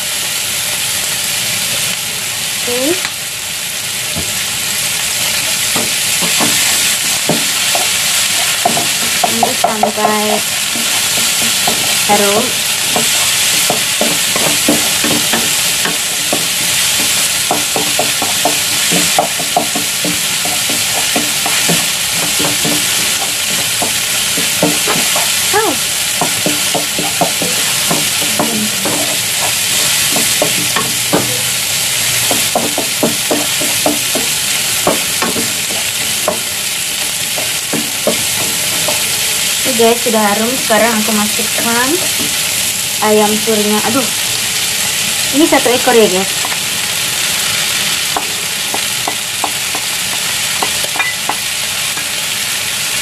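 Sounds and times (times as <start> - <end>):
vegetables sizzling in hot oil: 0.0 - 53.0
wooden spatula scraping pan: 5.8 - 25.5.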